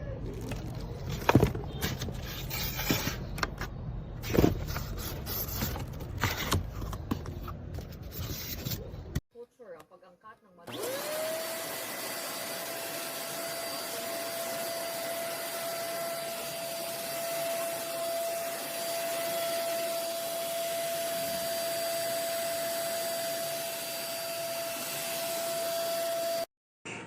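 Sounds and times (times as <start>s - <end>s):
vacuum cleaner running: 10.7s - 26.5s.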